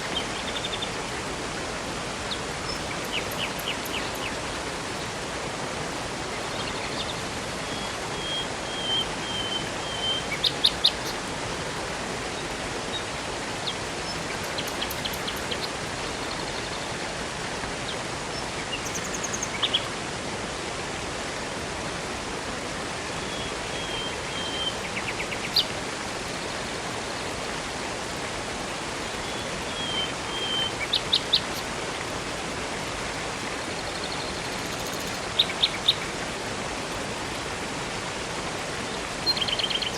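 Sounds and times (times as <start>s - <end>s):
songbirds calling: 0.0s - 1.2s, 2.2s - 5.2s, 6.1s - 11.4s, 12.3s - 17.1s, 17.9s - 19.9s, 23.2s - 27.3s, 28.2s - 32.0s, 32.8s - 36.3s, 38.8s - 39.9s
river and waterfall rushing: 0.0s - 39.9s.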